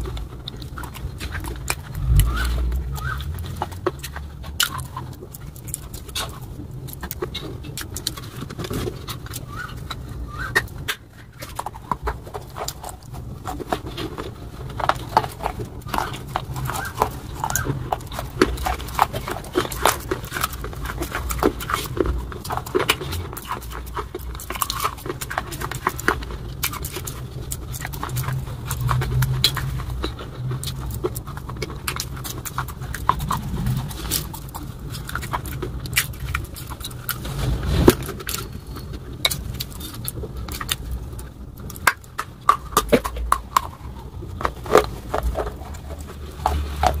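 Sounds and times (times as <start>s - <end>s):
low rumble: 0.0s - 5.5s, 27.2s - 41.7s
crunchy chewing: 0.0s - 47.0s.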